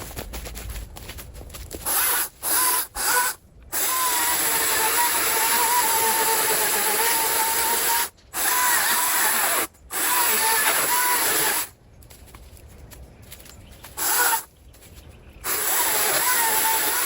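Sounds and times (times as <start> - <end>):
chainsaw running: 1.8 - 11.7, 14.0 - 14.5, 15.4 - 17.0.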